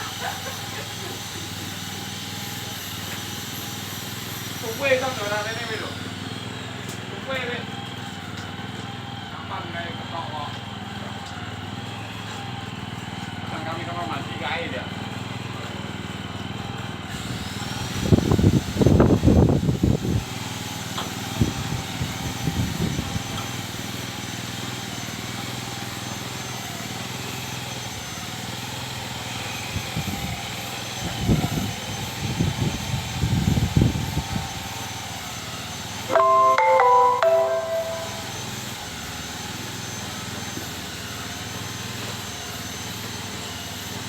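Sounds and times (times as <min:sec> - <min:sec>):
small engine running: 0:00.0 - 0:20.6.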